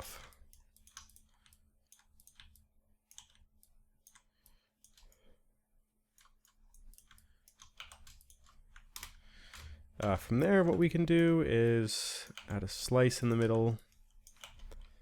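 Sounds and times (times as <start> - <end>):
mouse and keyboard clicks: 0.5 - 5.2.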